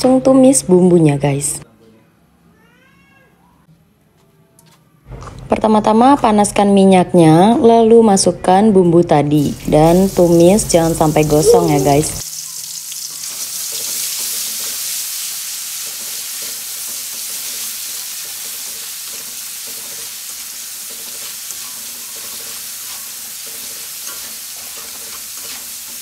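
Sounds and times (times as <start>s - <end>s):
spice paste sizzling in oil: 9.4s - 26.0s.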